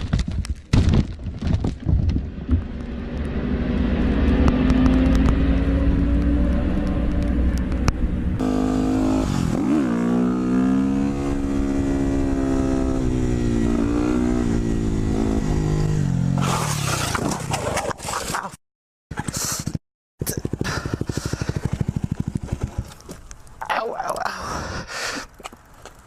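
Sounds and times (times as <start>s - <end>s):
motorcycle engine revving: 2.3s - 17.2s, 20.2s - 23.2s.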